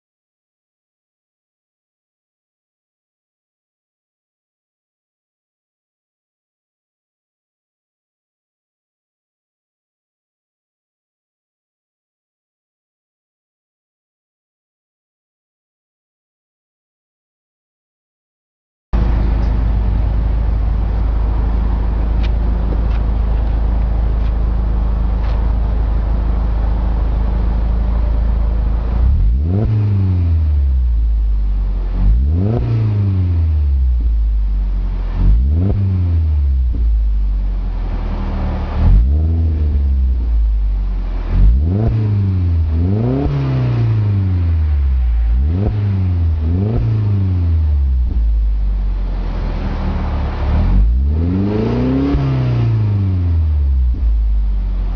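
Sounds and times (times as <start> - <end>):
car engine idling and revving: 19.0 - 54.9.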